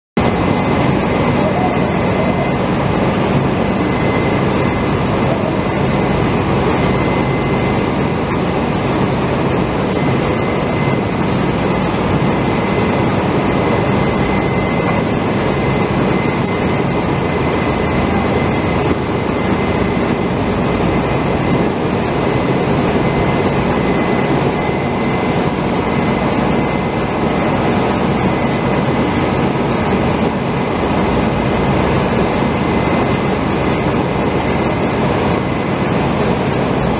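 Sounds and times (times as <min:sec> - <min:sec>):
thin constant whine: 0:00.2 - 0:36.9.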